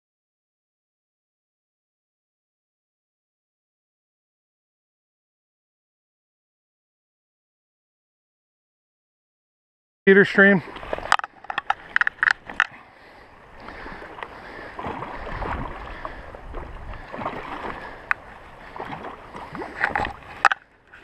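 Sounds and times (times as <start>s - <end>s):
stream water splashing: 10.2s - 21.0s
sharp clicks and knocks: 11.1s - 12.7s, 19.8s - 20.6s.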